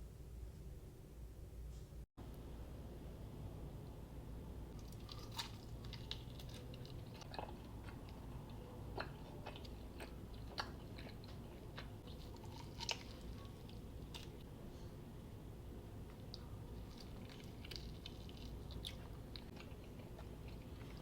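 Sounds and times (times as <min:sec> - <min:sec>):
low steady hum: 0:00.0 - 0:21.0
crunchy chewing: 0:04.8 - 0:14.4, 0:16.1 - 0:21.0.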